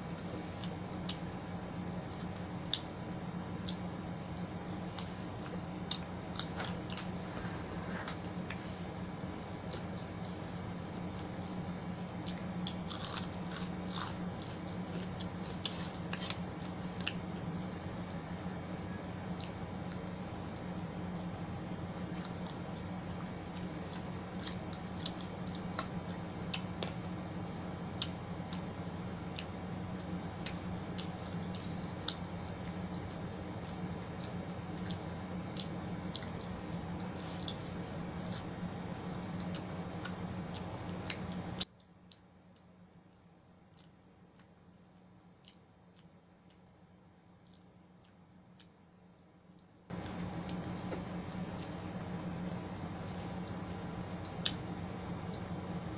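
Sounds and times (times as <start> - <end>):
steady low hum: 0.0 - 55.9
chewing and crunchy bites: 9.3 - 18.3, 19.0 - 21.2, 21.9 - 27.2, 27.9 - 46.7, 49.6 - 55.7.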